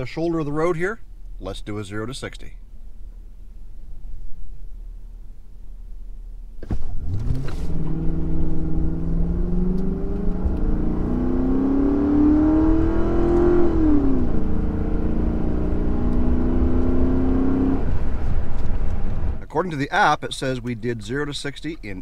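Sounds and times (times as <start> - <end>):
car engine accelerating hard: 6.6 - 19.4.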